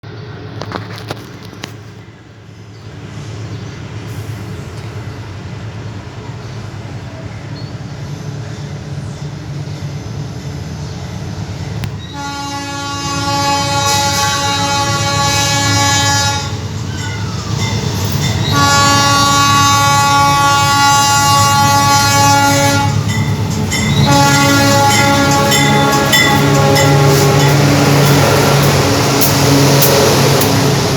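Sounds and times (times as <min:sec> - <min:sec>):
diesel locomotive rumble: 0:00.0 - 0:30.9
train air horn blasts: 0:12.1 - 0:16.6, 0:18.4 - 0:30.9.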